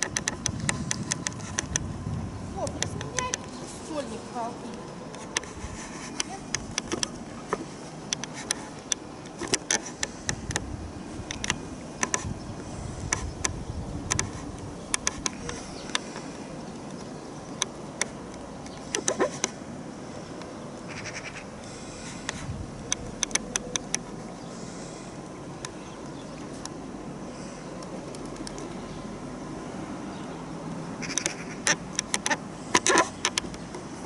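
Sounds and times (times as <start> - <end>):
sharp clicks and taps: 0.0 - 1.9, 6.1 - 10.7, 13.1 - 16.2, 22.3 - 24.0, 31.0 - 33.9
wind noise: 0.0 - 4.0, 5.1 - 7.7, 9.4 - 16.1, 22.0 - 23.9.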